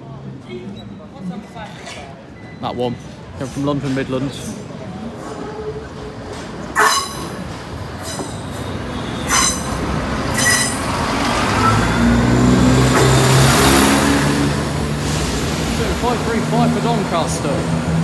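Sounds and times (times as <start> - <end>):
train diesel engines: 0.0 - 18.0
wheels clacking over rail joints: 6.0 - 14.1
faint wheel squeal: 6.8 - 7.4, 8.0 - 12.1.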